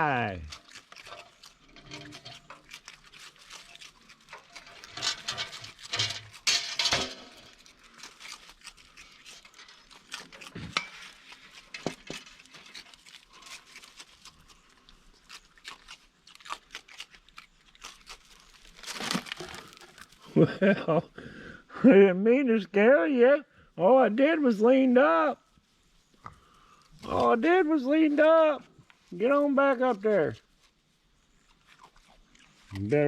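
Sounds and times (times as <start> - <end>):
animals crunching food: 0.0 - 20.5, 25.2 - 33.0
rustling: 0.4 - 20.4.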